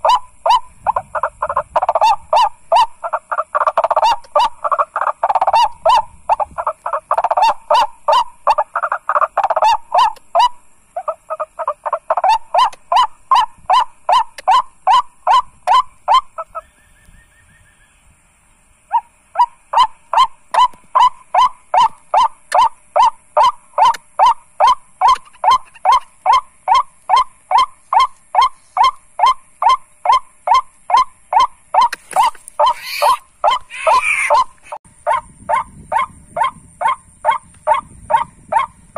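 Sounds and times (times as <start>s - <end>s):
waterhen calling kwak notes: 0.0s - 17.9s, 18.9s - 38.7s.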